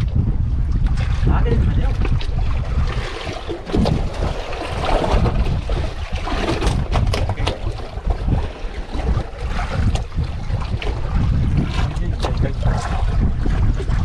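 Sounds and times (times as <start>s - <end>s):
water lapping against hull: 0.0s - 14.0s
wind buffeting microphone: 0.0s - 14.0s
short knocks and slaps: 6.7s - 7.8s.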